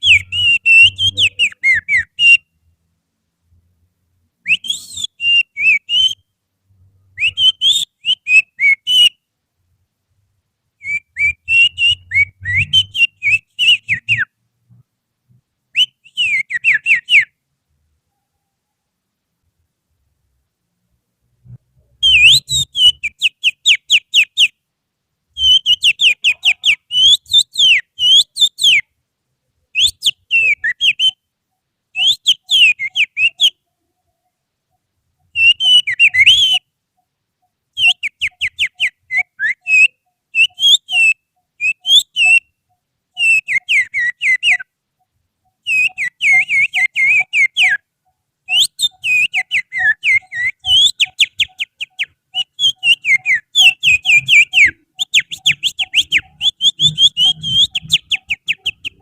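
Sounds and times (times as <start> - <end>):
finger whistling birdsong trills: 0.0 - 2.5, 4.5 - 6.2, 7.2 - 9.2, 10.8 - 14.3, 15.8 - 17.4, 22.0 - 24.6, 25.4 - 28.9, 29.8 - 31.2, 32.0 - 33.6, 35.3 - 36.7, 37.8 - 42.6, 43.2 - 44.7, 45.5 - 47.8, 48.5 - 59.0.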